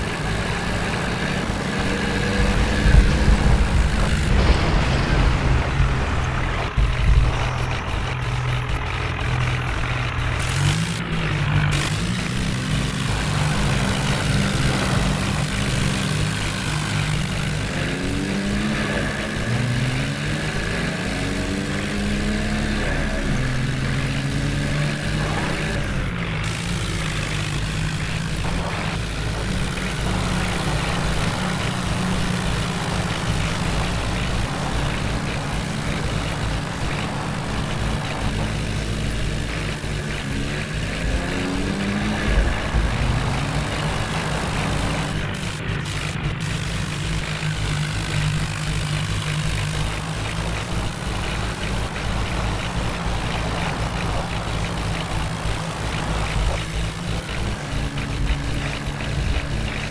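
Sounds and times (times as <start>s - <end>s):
heavy diesel engine revving: 0.0s - 59.9s.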